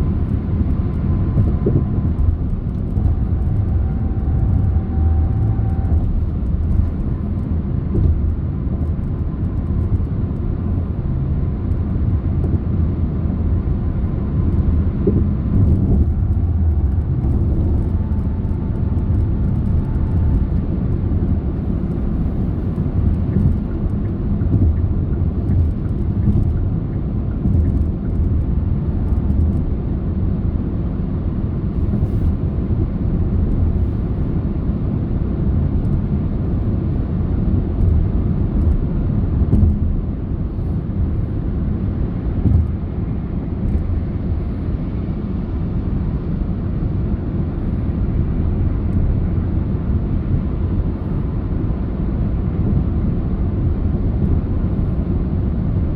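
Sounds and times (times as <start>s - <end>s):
car engine hum: 0.0s - 55.8s
tyres rumbling on road: 0.0s - 55.8s.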